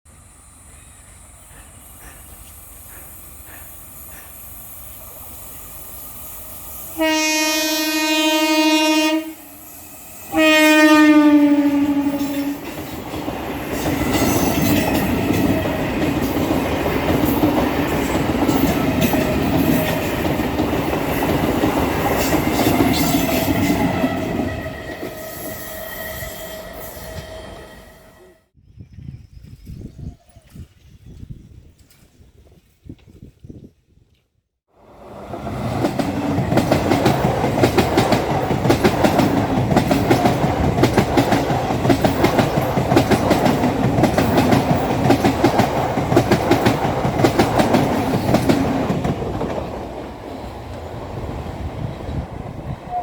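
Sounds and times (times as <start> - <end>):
train horn blasts: 6.9 - 9.7, 10.3 - 12.8, 22.9 - 28.5
train wheels clickety-clack: 11.7 - 25.2, 35.3 - 52.8.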